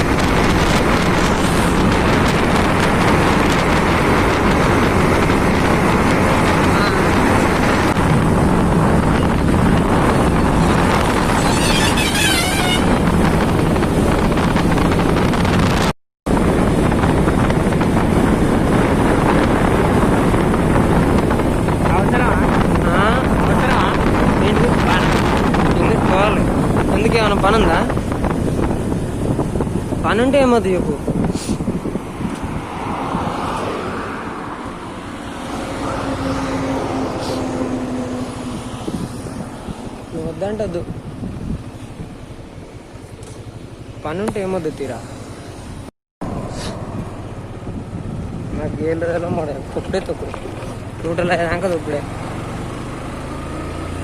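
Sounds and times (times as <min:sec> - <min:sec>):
motorcycle engine: 0:00.0 - 0:30.5, 0:31.1 - 0:54.0
wind rushing over microphone: 0:00.0 - 0:54.0
motorcycle engine running: 0:40.2 - 0:53.3.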